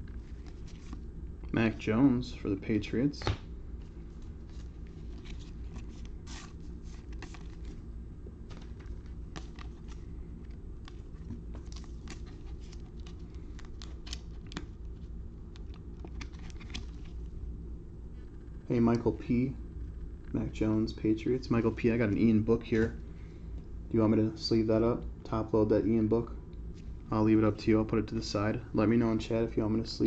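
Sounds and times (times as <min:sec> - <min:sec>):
steady low hum: 0:00.0 - 0:30.0
cards clicking and sliding: 0:04.6 - 0:07.8, 0:08.5 - 0:14.7.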